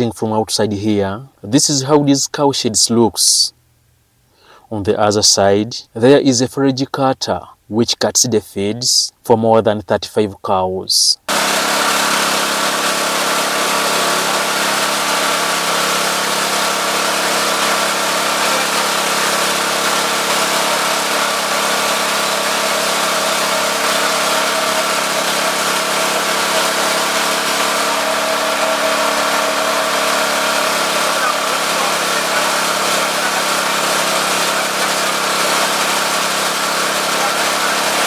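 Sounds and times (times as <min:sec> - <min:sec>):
chaff cutter machine hum: 0:11.3 - 0:38.0.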